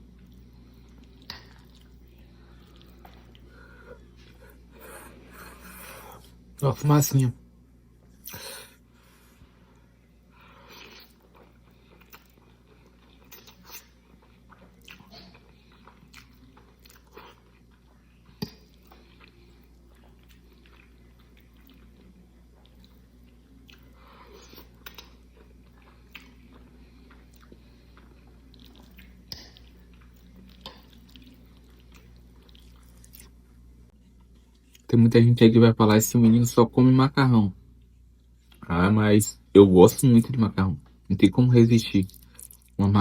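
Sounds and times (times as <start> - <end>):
chewing pasta: 0.0 - 6.4, 9.4 - 34.9, 41.9 - 42.8.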